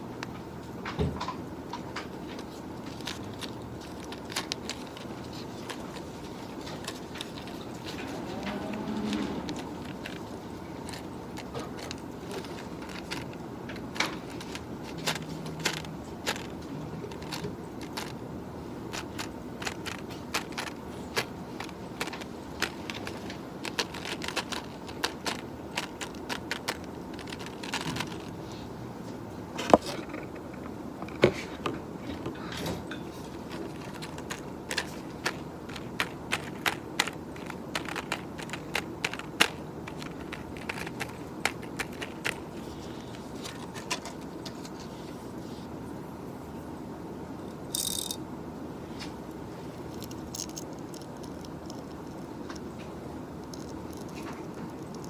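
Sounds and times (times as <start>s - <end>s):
low room hum: 0.0s - 55.0s
computer keyboard typing: 2.9s - 18.2s, 18.9s - 28.4s, 33.3s - 44.2s, 53.4s - 55.0s.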